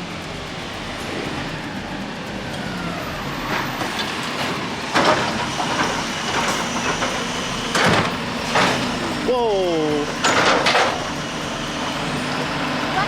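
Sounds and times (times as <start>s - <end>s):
garbage truck mechanical rumble: 0.0s - 13.0s
sharp metal clanks: 10.2s - 11.2s.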